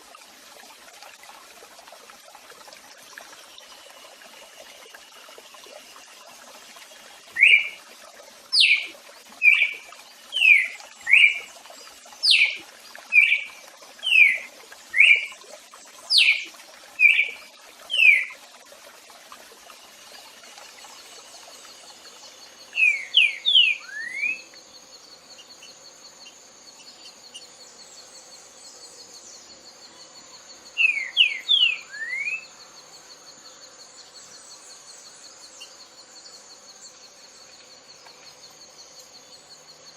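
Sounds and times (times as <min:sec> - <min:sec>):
songbird whistled notes: 0:07.4 - 0:07.8, 0:08.6 - 0:09.7, 0:22.8 - 0:24.5, 0:30.8 - 0:32.4.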